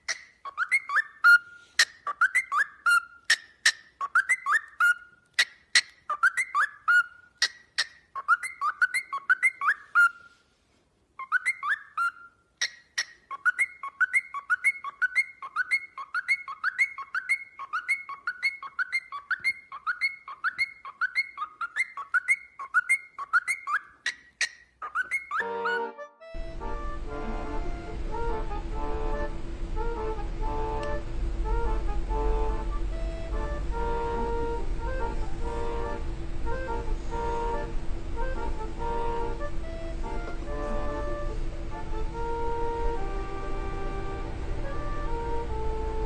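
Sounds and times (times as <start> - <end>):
bird chirping with clicks: 0.0 - 9.8, 12.6 - 25.4.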